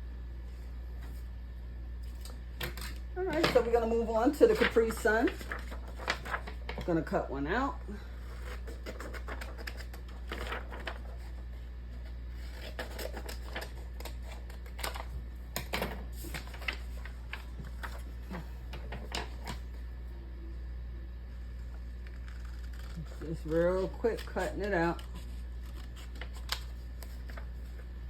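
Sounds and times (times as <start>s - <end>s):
scissors snipping paper: 8.4s - 10.8s, 22.0s - 27.4s.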